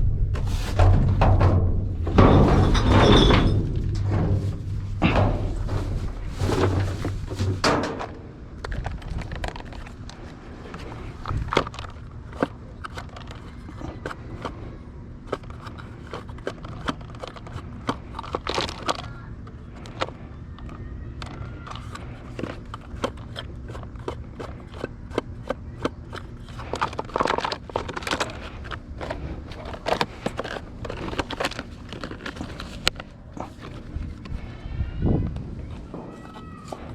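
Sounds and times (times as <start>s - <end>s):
objects clattering in dumpster: 0.0s - 14.7s, 15.3s - 19.2s, 25.5s - 34.4s.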